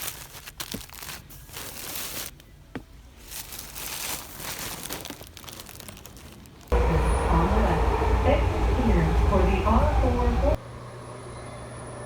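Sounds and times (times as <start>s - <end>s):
rustling and crinkling: 0.0s - 6.7s.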